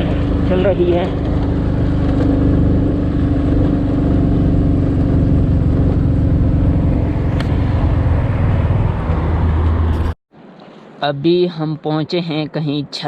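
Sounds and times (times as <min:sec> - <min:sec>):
motorcycle engine running: 0:00.0 - 0:10.2
road noise: 0:00.0 - 0:13.0.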